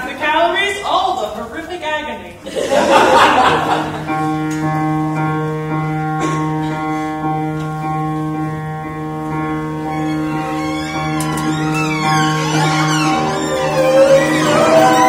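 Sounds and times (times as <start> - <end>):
pit orchestra holding a chord: 8.6 - 15.0
sliding wavering notes: 8.9 - 15.0.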